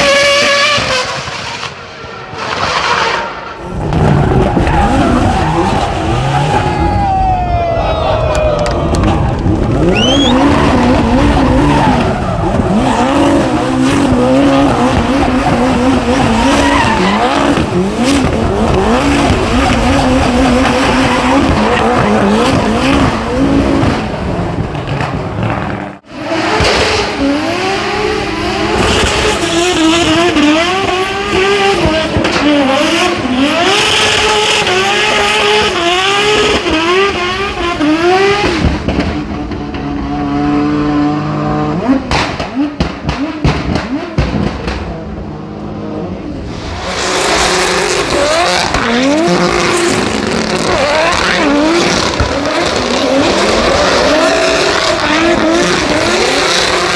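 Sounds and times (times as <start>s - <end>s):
tyres squealing and skidding: 0.0s - 23.8s, 46.4s - 56.9s
car engines revving: 0.0s - 56.9s.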